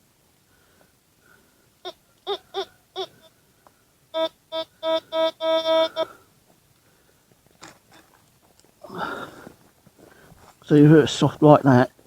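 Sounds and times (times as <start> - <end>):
metal detector beeping: 4.1 - 6.2.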